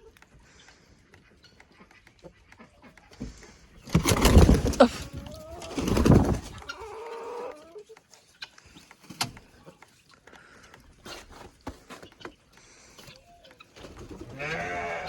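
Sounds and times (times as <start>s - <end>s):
chickens clucking: 0.0s - 15.0s
small knocks and scratches: 10.7s - 12.4s.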